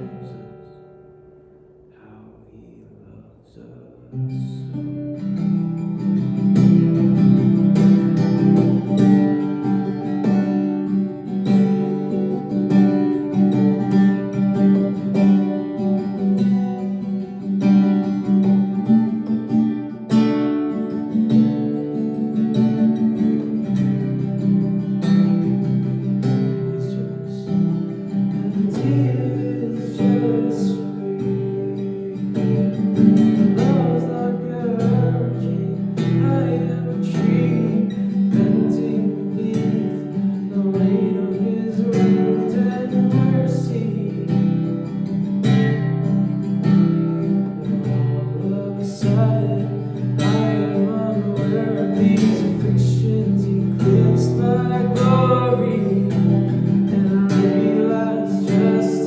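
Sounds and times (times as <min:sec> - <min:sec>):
acoustic guitar strumming: 0:00.0 - 0:59.0
person singing: 0:26.4 - 0:44.6, 0:47.4 - 0:59.0.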